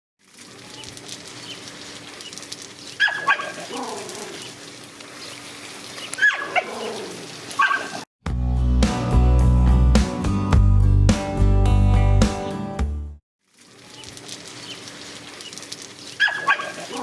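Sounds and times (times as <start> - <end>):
dogs barking sharply: 3.0 - 4.2, 16.2 - 17.0
dog yelping calls: 3.0 - 4.5, 6.1 - 8.0, 16.2 - 17.0.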